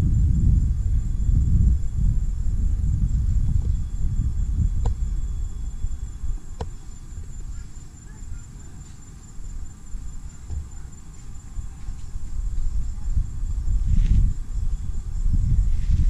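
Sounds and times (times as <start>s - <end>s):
low rumble: 0.0s - 6.6s
high-pitched insect drone: 0.0s - 16.0s.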